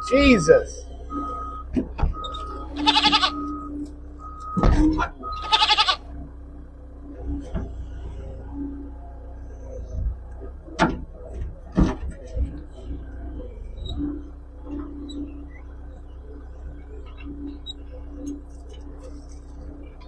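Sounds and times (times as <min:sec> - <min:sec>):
reversing alarm beeping: 0:00.0 - 0:06.8
skid steer engine running: 0:00.0 - 0:20.0
goat bleating: 0:02.7 - 0:03.6, 0:05.2 - 0:06.1.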